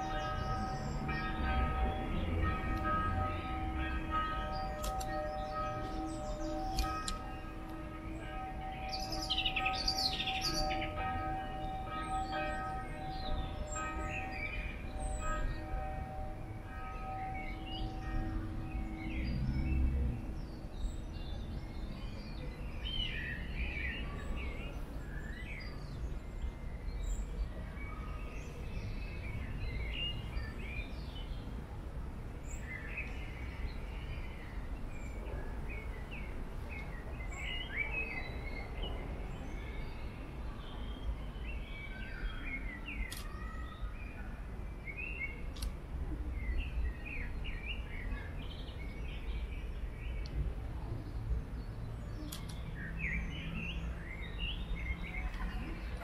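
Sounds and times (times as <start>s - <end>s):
songbirds chirping and singing: 0.0s - 31.6s.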